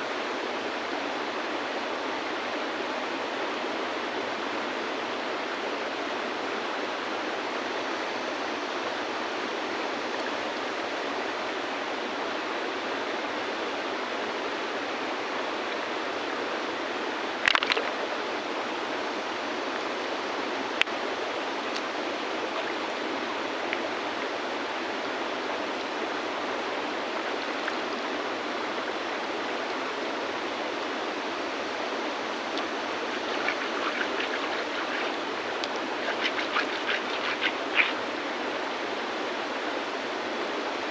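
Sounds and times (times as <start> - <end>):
river flowing over stones: 0.0 - 40.9
stones knocking together: 17.5 - 17.9.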